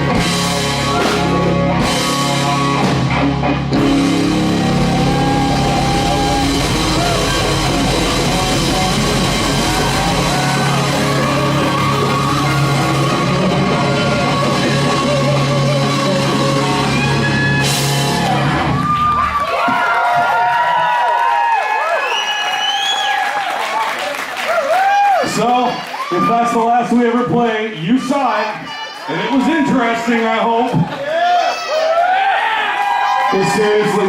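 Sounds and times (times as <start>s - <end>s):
live rock band playing: 0.0s - 19.5s.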